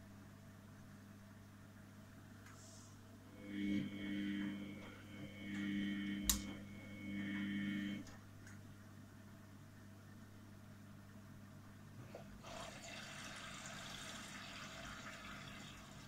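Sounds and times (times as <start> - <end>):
washing machine humming: 0.0 - 16.0.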